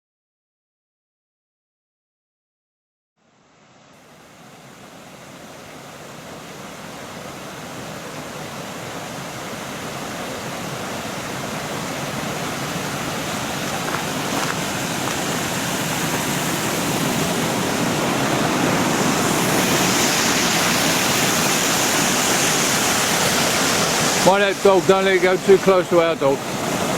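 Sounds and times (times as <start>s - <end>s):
steady rushing noise: 9.7s - 26.9s.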